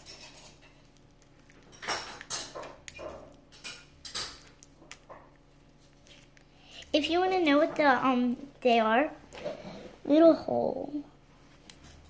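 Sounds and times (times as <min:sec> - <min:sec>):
plastic packaging crinkling: 0:00.3 - 0:03.5, 0:04.3 - 0:07.2.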